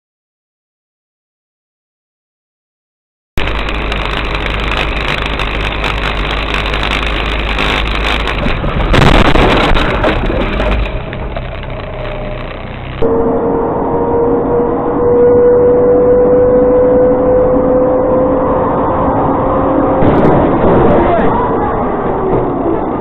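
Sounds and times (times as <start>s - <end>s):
steady tone: 3.4s - 20.0s
car engine and road noise: 3.4s - 23.0s
low hum: 3.4s - 23.0s
rush of noise: 3.4s - 23.0s.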